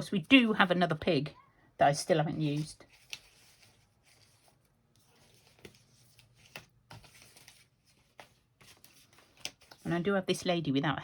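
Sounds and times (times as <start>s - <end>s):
paper rustling and clicking: 2.5s - 9.9s.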